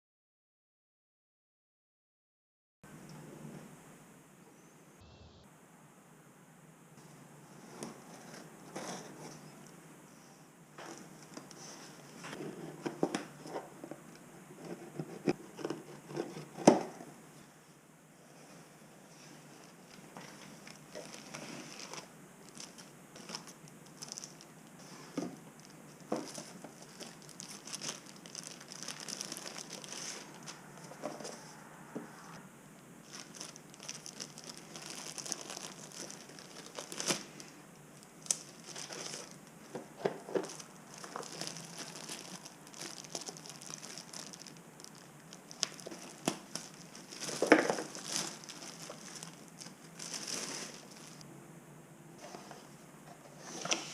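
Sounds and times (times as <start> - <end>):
plastic and paper crinkling: 19.2 - 31.5, 33.0 - 51.2, 52.2 - 53.9.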